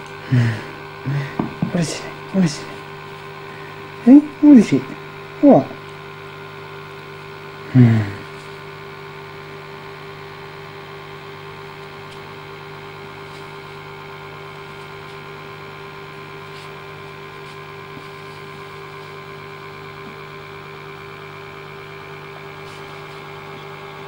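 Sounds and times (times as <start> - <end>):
electrical hum: 0.0 - 24.0
short falling vocal sound: 5.4 - 5.8, 7.7 - 8.3.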